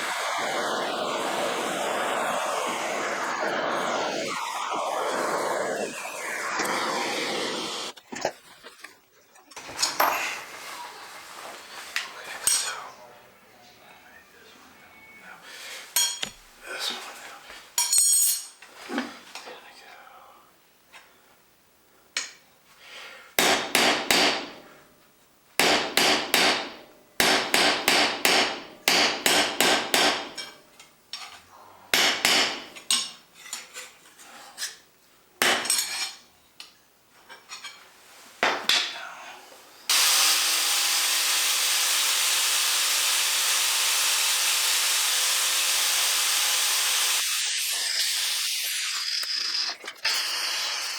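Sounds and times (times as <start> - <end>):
loud steady hiss: 0.0 - 8.0, 38.7 - 50.9
hammer striking steel on anvil: 25.6 - 30.5, 31.9 - 33.2.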